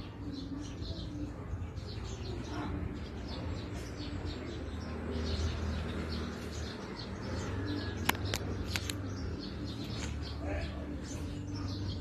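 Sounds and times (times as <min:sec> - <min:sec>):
small birds chirping: 0:00.0 - 0:12.0
sharp clicks: 0:08.0 - 0:09.2.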